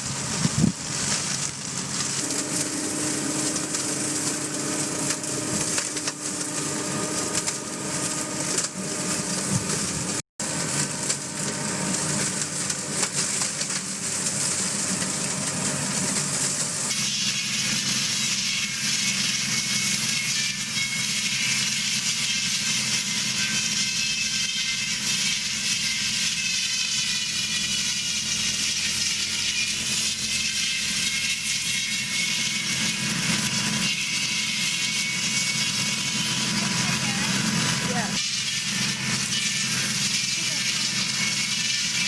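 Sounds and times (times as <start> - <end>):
loud hissy running noise: 0.0 - 17.1
heavy machine engine running: 0.0 - 18.4, 30.9 - 42.0
crackling grinding noise: 0.0 - 42.0.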